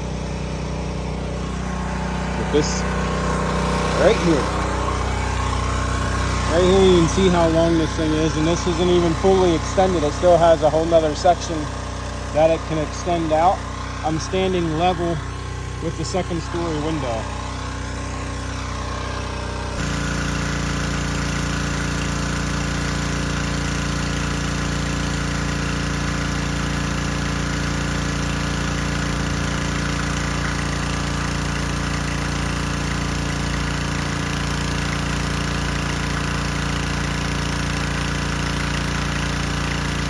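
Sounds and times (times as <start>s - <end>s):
pressure washer engine running: 0.0s - 40.0s
water spray hissing: 1.2s - 40.0s.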